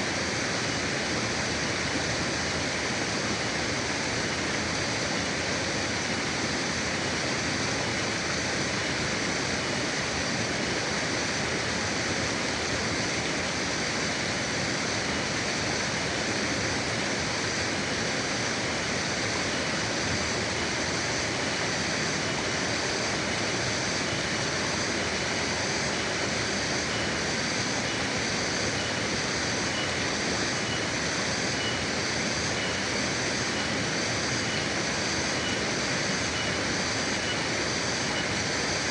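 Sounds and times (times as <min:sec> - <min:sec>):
river water rushing over rocks: 0:00.0 - 0:38.9
faint high pulsing tones: 0:18.6 - 0:38.4.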